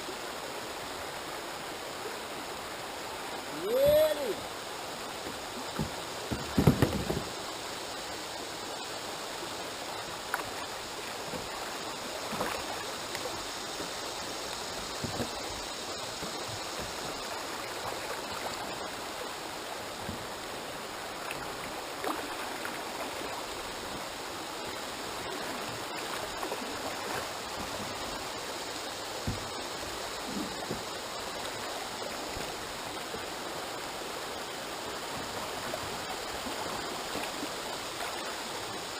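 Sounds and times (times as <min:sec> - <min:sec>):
river water rushing: 0:00.0 - 0:38.9
knocks: 0:05.8 - 0:07.3.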